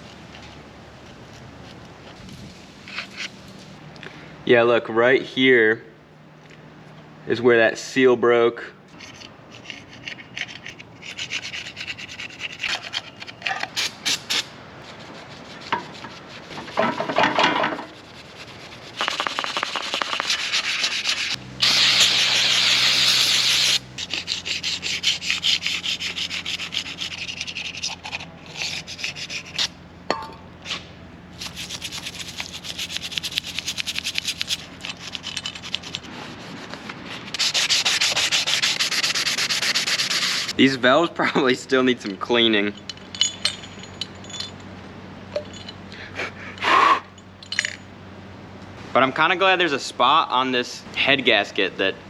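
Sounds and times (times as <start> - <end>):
scraping on engine cylinder head: 9.0 - 29.8.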